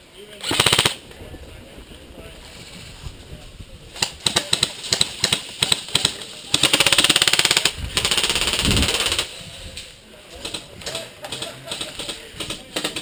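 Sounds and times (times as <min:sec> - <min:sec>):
airsoft guns firing: 0:00.4 - 0:01.0, 0:04.0 - 0:09.3.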